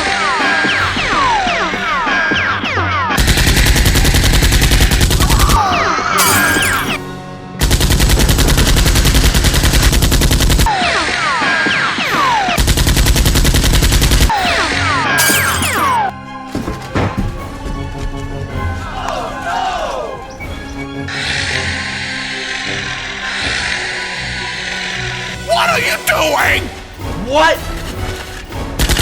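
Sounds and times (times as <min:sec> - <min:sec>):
background music: 0:00.0 - 0:29.0
machine-gun fire: 0:03.2 - 0:05.5, 0:07.6 - 0:10.8, 0:12.3 - 0:14.6.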